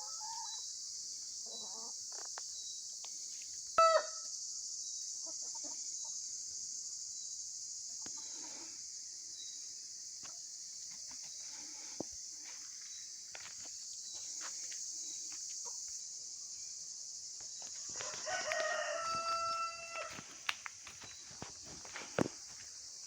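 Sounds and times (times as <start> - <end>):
chickens clucking: 1.4 - 2.4, 5.2 - 6.3
rooster crowing: 3.8 - 4.2, 17.9 - 20.3.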